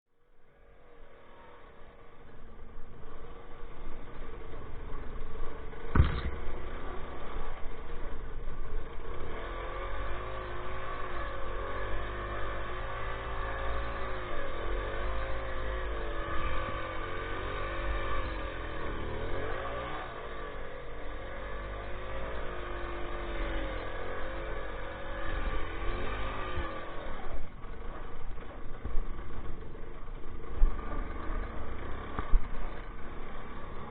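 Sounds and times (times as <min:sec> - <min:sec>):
two-stroke motorcycle engine running: 0:00.5 - 0:33.9
sharp knock: 0:05.9 - 0:06.4.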